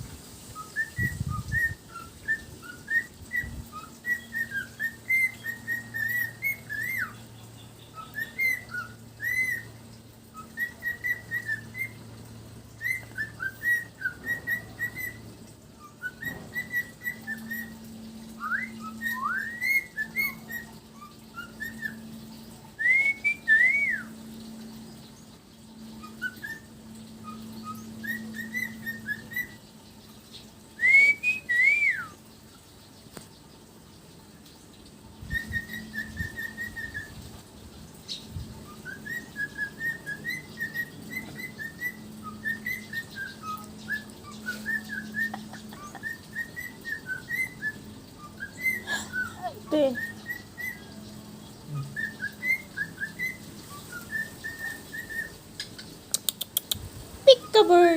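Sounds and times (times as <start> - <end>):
parrot whistling: 0.6 - 7.2, 8.0 - 12.1, 12.8 - 15.2, 15.8 - 24.4, 25.8 - 29.6, 30.8 - 32.2, 35.3 - 37.2, 38.6 - 51.0, 51.7 - 55.4.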